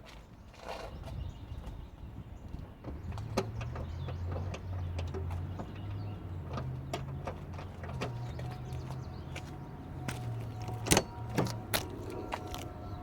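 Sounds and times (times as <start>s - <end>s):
low motor hum: 2.8s - 13.0s.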